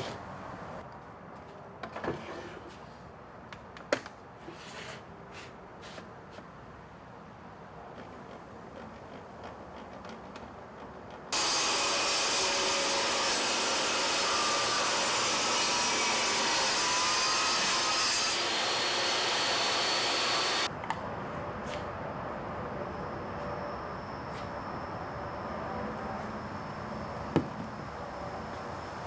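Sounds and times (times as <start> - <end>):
woodworking power tool running: 11.4 - 20.7.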